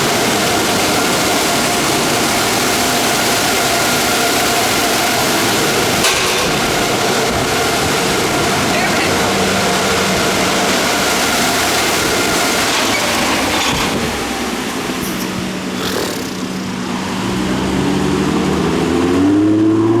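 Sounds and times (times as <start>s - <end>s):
car wash air dryers blowing: 0.0s - 19.1s.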